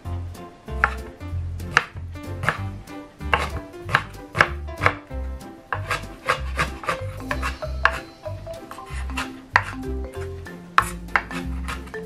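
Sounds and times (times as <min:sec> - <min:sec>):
background music: 0:00.0 - 0:12.0
knife chopping on wooden board: 0:00.8 - 0:05.1, 0:05.7 - 0:08.1, 0:08.7 - 0:10.2, 0:10.8 - 0:12.0.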